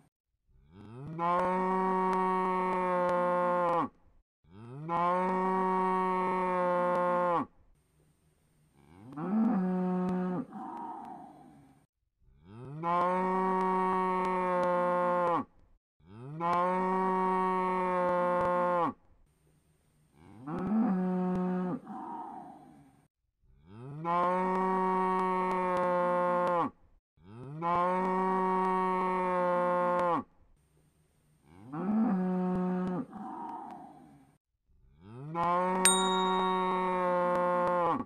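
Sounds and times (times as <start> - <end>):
cow mooing: 37.0 - 38.0.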